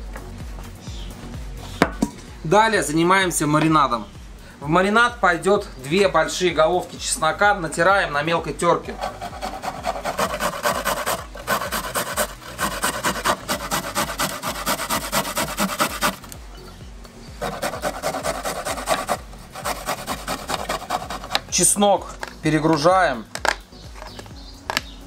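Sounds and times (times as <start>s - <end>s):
garlic rasping on metal grater: 9.0s - 16.2s, 17.4s - 21.4s.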